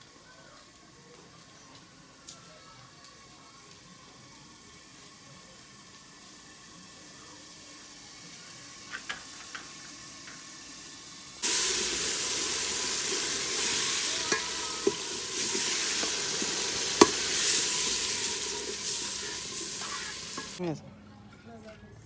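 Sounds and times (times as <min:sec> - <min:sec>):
pot hissing on stove: 0:00.1 - 0:20.6
food sizzling in hot oil: 0:03.3 - 0:20.6.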